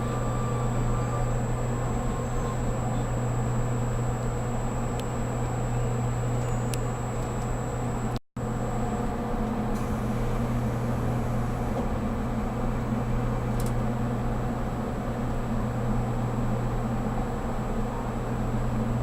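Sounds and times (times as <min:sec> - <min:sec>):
faint high whine: 0:00.0 - 0:11.8.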